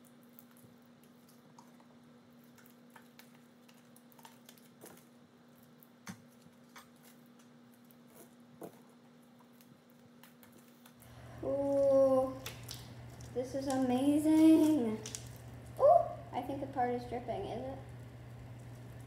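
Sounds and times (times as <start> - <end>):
low steady hum: 0.0 - 19.0
slime squishing and clicking: 0.3 - 7.9, 12.4 - 15.8.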